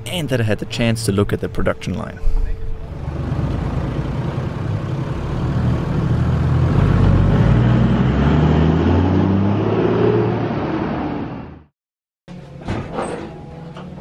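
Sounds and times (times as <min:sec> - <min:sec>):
vehicle engine accelerating: 0:02.6 - 0:11.7.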